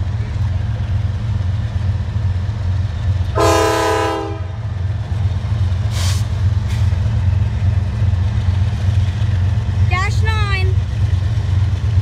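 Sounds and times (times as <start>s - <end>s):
locomotive air horn blast: 3.4s - 4.6s.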